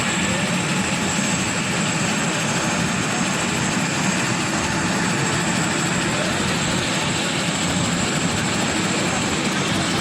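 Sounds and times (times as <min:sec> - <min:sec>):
helicopter engine and rotor: 0:00.0 - 0:10.0.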